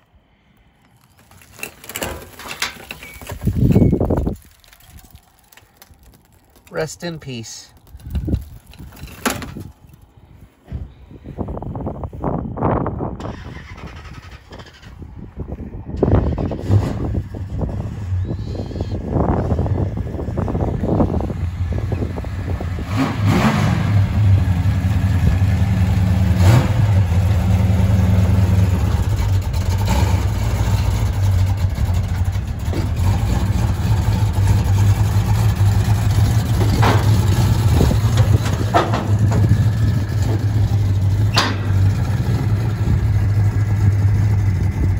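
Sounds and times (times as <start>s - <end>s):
car engine idling and revving: 13.2s - 44.9s.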